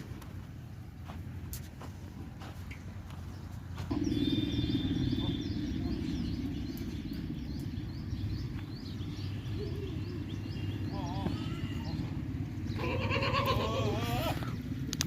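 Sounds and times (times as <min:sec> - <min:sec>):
low rumble: 0:02.0 - 0:13.0
bird chirping: 0:03.1 - 0:13.5.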